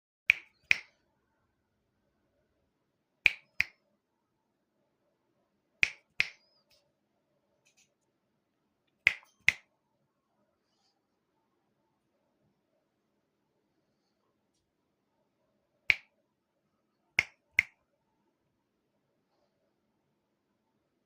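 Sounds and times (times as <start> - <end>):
finger snaps: 0.3 - 1.0, 3.3 - 3.8, 5.8 - 6.6, 9.1 - 9.7, 15.9 - 16.1, 17.2 - 17.8.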